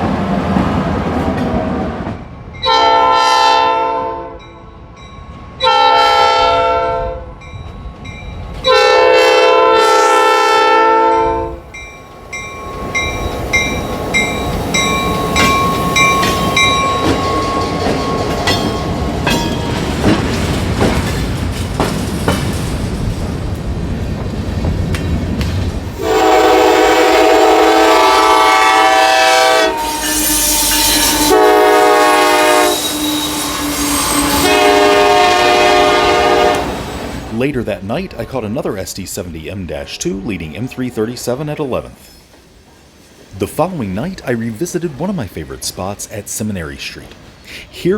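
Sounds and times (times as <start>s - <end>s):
train cars clanking: 0.0s - 3.2s, 7.4s - 47.9s
diesel locomotive horn blasts: 2.6s - 4.5s, 5.6s - 7.4s, 8.7s - 11.6s, 26.0s - 36.8s
train wheels clicking on rails: 11.7s - 28.4s
bell ringing steadily: 11.8s - 19.7s.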